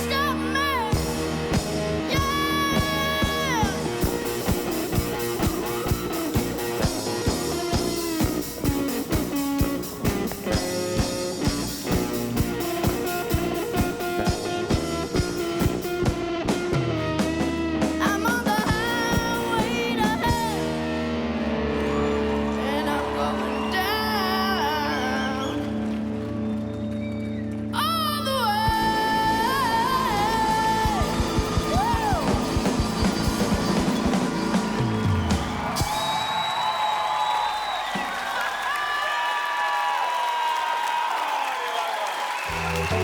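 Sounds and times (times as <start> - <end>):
driving drum beat: 0.0 - 20.7, 28.6 - 36.8
distorted electric guitar: 0.0 - 23.4, 28.4 - 35.6.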